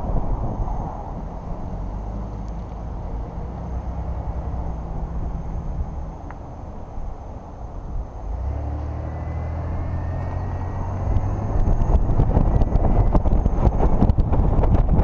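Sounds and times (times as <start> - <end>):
wind buffeting microphone: 0.0 - 8.5, 9.3 - 15.0
car engine accelerating: 0.0 - 15.0.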